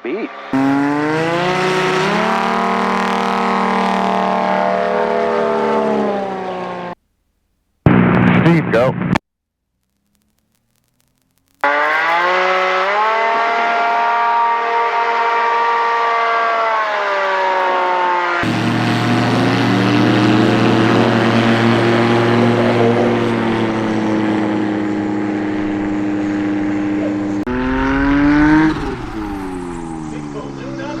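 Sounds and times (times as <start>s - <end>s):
airplane engine and propeller: 18.3s - 31.0s.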